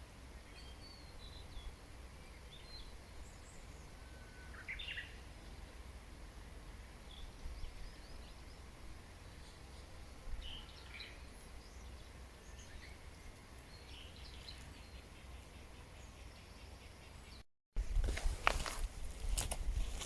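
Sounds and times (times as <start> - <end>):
birds chirping: 7.0 - 17.4.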